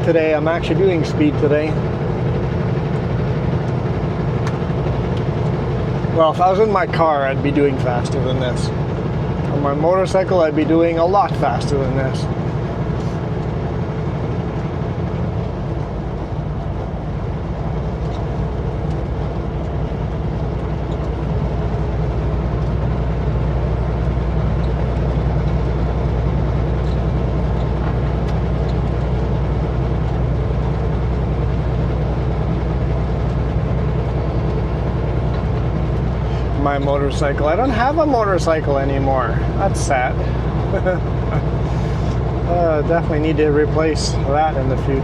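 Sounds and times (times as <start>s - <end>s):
road noise: 0.0s - 45.0s
truck diesel drone: 0.0s - 45.0s.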